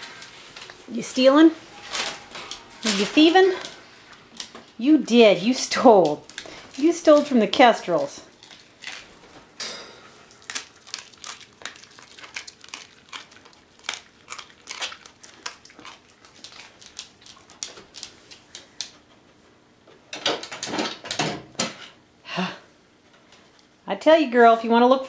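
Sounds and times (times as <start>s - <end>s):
crinkling crackling clicks: 6.0s - 9.1s, 10.3s - 19.0s.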